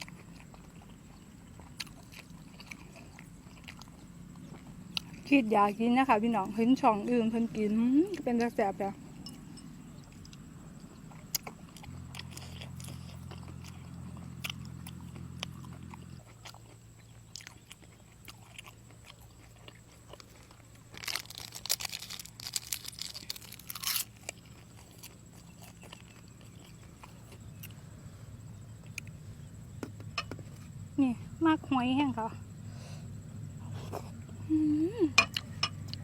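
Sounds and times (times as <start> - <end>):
person chewing seafood: 0.0 - 5.3, 9.0 - 30.7, 35.2 - 36.0
crackling crunches: 0.0 - 31.1
steady low hum: 0.0 - 36.0.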